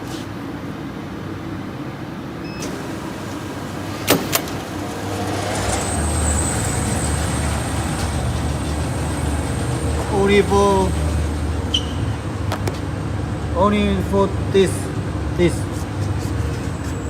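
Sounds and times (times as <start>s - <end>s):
conveyor motor hum: 0.8s - 17.0s
high motor whine: 2.6s - 13.4s.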